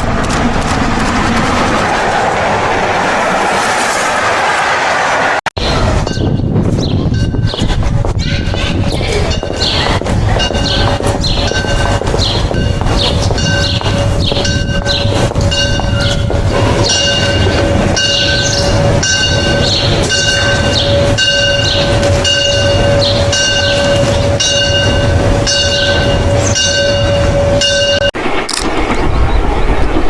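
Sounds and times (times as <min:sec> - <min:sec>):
train rumble: 0:00.0 - 0:30.0
train bell ringing: 0:05.6 - 0:06.4, 0:07.1 - 0:07.6, 0:09.2 - 0:28.2.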